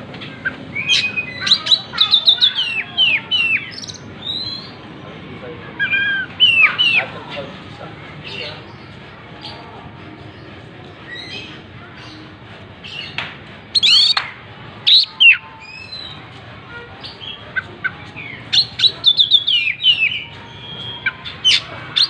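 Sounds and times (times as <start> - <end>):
bird singing whistled phrases: 0.8 - 4.8, 13.8 - 14.2, 14.9 - 16.2, 18.5 - 22.0.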